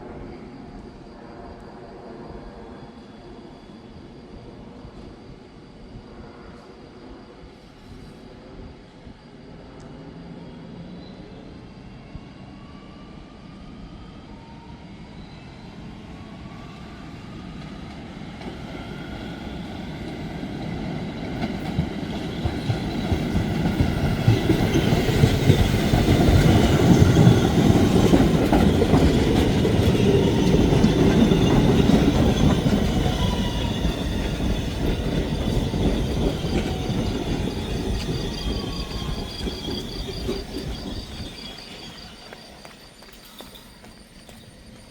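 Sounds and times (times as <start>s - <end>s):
train rumble passing: 16.1s - 44.9s
high wheel squeal: 24.4s - 44.9s.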